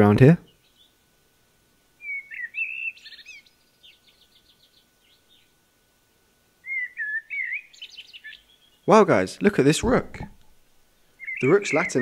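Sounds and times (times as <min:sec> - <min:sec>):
small songbird singing: 0:00.4 - 0:01.0, 0:02.0 - 0:05.6, 0:06.6 - 0:09.0, 0:09.8 - 0:12.0.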